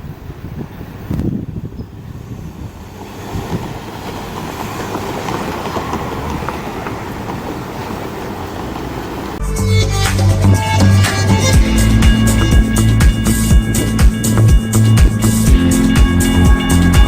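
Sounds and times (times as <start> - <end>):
train wheels rumbling on rails: 0.0 - 9.4, 10.3 - 17.0
rail clicks: 1.0 - 9.4, 10.8 - 17.0.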